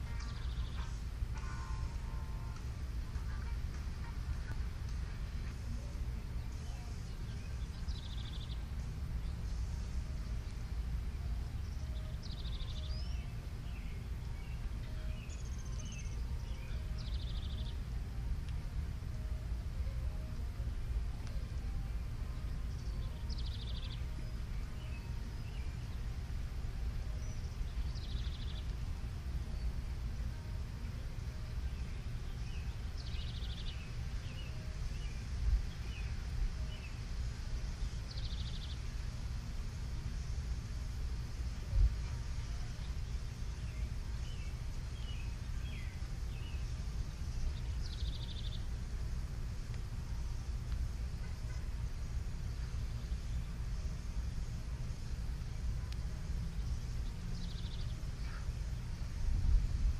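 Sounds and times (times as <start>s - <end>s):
bird chirps: 0.0s - 10.0s, 11.1s - 17.9s, 27.1s - 29.7s, 42.0s - 48.8s
songbird trills: 0.0s - 59.4s
steady low rumble: 0.0s - 59.9s.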